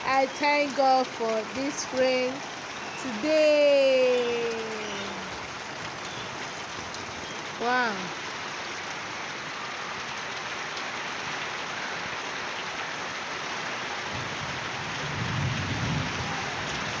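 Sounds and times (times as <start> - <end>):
steady rain hiss: 0.0 - 17.0.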